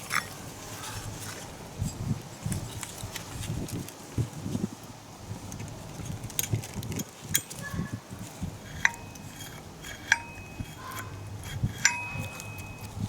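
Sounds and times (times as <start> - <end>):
metal tools clinking: 0.0 - 0.4, 8.6 - 13.0
sharp metal strikes ringing: 10.1 - 11.1, 11.8 - 12.9.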